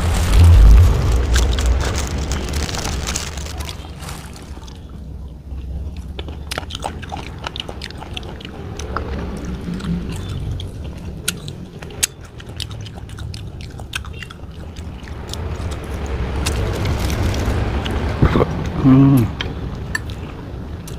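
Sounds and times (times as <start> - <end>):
low thumps: 0.0 - 3.5
rustling noise: 0.0 - 4.9
chewing and crunching: 0.0 - 20.9.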